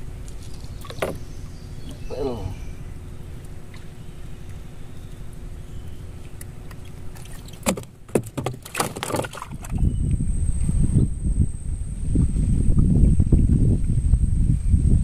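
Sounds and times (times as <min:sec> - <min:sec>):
boat motor running: 0:00.0 - 0:14.6
wind buffeting microphone: 0:09.2 - 0:15.0.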